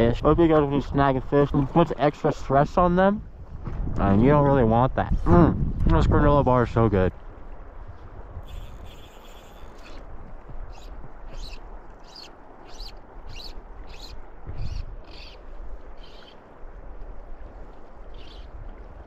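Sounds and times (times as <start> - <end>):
bird calling short high call: 8.4 - 10.0.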